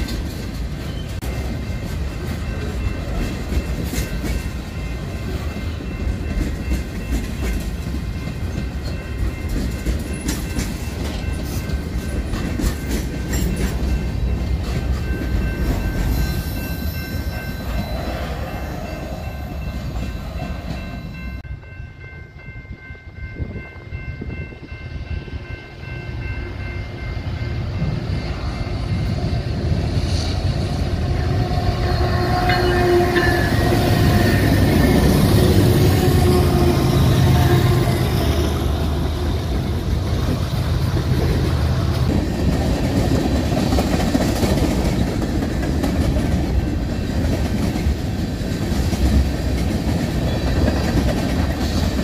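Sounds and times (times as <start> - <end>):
freight train rumble: 0.0 - 52.0
locomotive rumbling: 0.0 - 52.0
steady high ringing: 0.7 - 30.2, 30.9 - 41.9.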